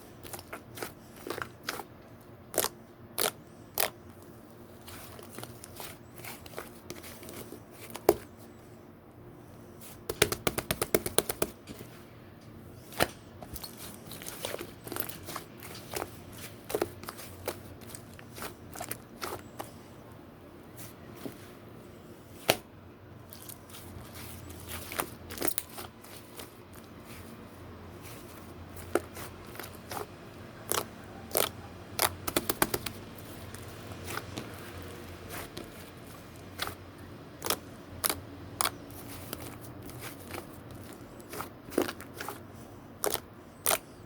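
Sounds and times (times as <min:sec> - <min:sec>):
slime clicking and popping: 0:30.7 - 0:34.5.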